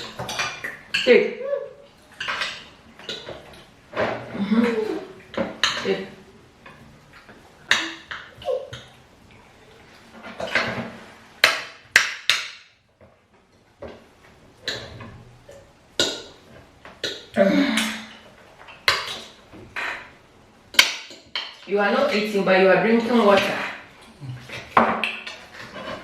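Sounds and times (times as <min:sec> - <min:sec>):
utensils clinking on plates: 0:00.0 - 0:01.2, 0:02.1 - 0:06.1
soft scraping and rustling: 0:25.4 - 0:26.0.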